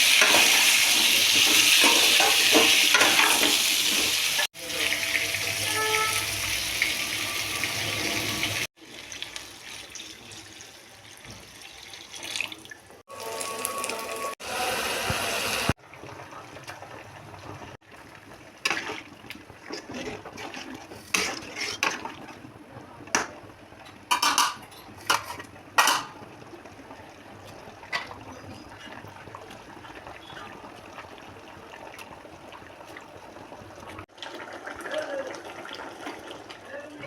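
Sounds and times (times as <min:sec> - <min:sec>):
running tap water: 0:00.0 - 0:15.8.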